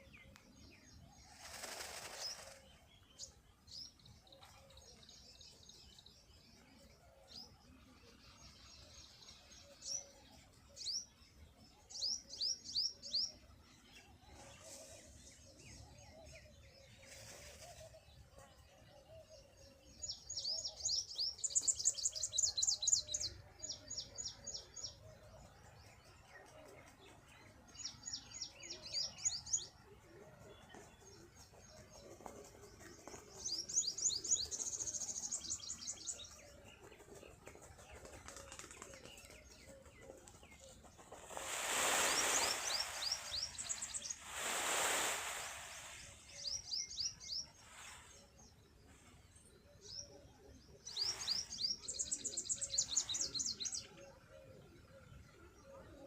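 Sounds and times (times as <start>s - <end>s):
small birds chirping: 0.0s - 56.0s
loud rushing noise: 41.4s - 43.6s, 44.2s - 46.2s.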